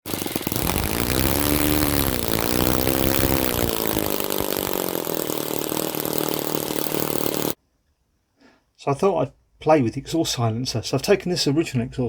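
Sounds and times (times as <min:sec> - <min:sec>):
model engine revving and idling: 0:00.0 - 0:07.6.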